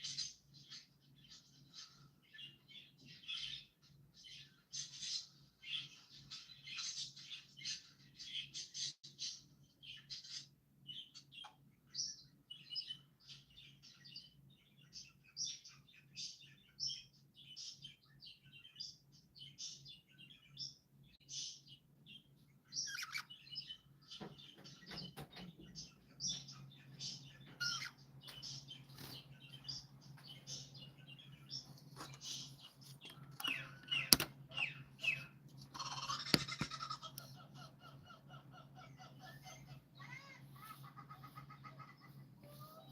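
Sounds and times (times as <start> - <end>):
faint low hum: 0.0 - 42.9
small birds chirping: 0.0 - 42.9
sharp clicks: 33.0 - 34.4.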